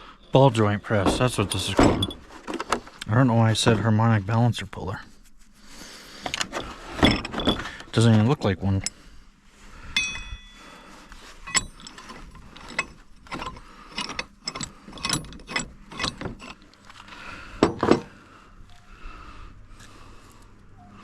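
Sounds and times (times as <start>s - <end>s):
metal tools clicking and clinking: 1.1s - 2.6s, 6.2s - 9.0s, 10.0s - 10.6s, 11.4s - 18.1s.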